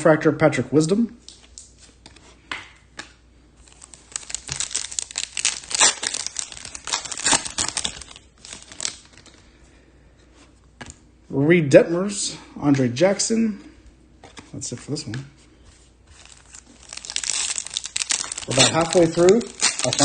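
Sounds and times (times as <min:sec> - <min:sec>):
foil wrapper crinkling: 0:03.6 - 0:09.5, 0:16.1 - 0:20.0.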